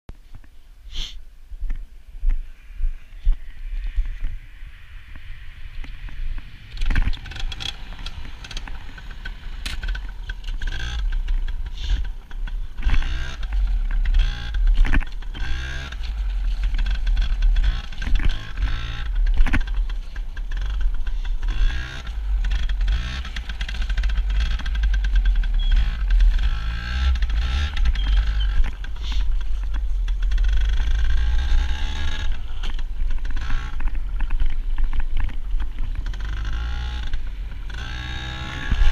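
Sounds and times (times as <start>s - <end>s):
heavy low rumble: 0.2s - 38.0s
two-stroke engine revving: 6.7s - 34.4s, 35.8s - 38.9s.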